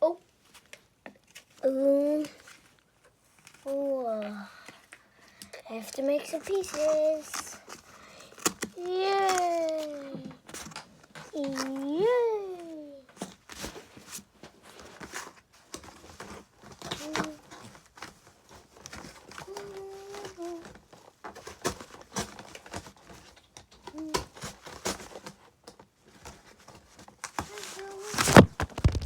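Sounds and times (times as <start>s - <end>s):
cardboard scraping and crinkling: 5.8s - 29.0s
phone falling over clatter: 28.2s - 29.0s.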